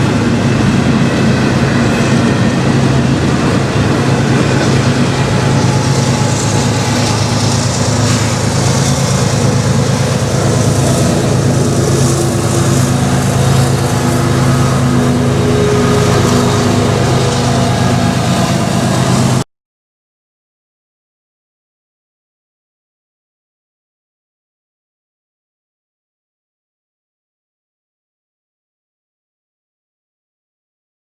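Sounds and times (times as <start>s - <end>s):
diesel locomotive engine hum: 0.0s - 19.5s
freight train rumble: 0.0s - 19.5s.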